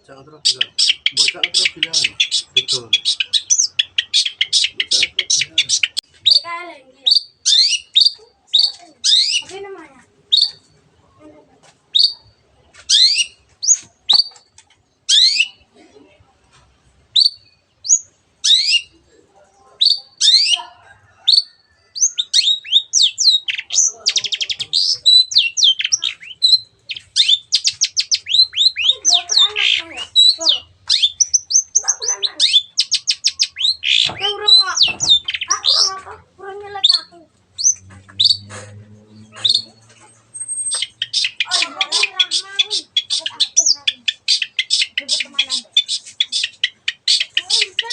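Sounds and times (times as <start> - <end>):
harsh bird chattering: 0.0 - 10.8, 11.9 - 15.7, 17.1 - 47.9
shrike singing whistled song: 0.6 - 6.5, 7.1 - 9.4, 11.9 - 12.3, 17.2 - 18.9, 21.3 - 35.9, 39.4 - 47.5
shrike harsh upward calls: 36.8 - 47.9.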